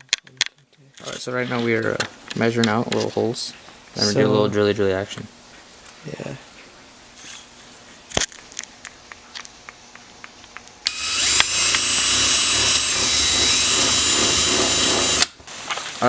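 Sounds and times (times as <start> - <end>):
power drill drilling plastic: 10.9 - 15.4.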